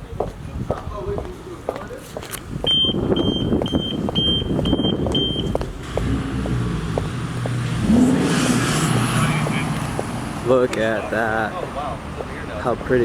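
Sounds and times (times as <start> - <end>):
short high-pitched beeps: 2.7 - 5.6
vehicle engine running: 5.5 - 12.6.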